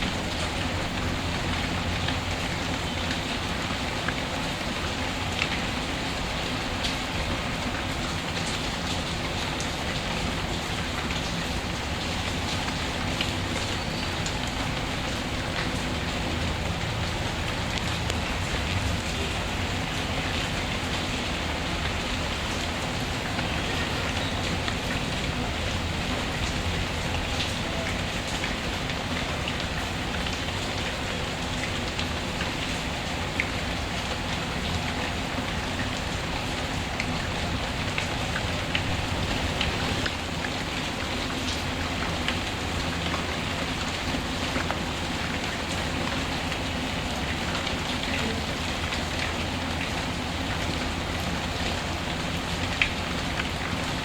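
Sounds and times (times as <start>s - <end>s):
steady rain falling: 0.0s - 54.0s
wood fire crackling: 38.7s - 40.3s.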